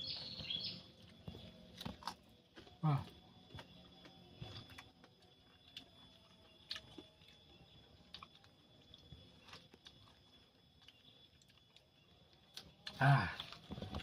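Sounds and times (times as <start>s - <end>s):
chewing raw fruit: 0.1s - 14.0s.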